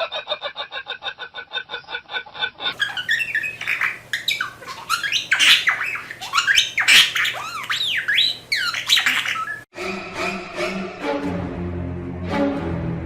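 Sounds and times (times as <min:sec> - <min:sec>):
parrot squawking and screeching: 0:02.7 - 0:09.7
music with held notes: 0:09.8 - 0:13.0.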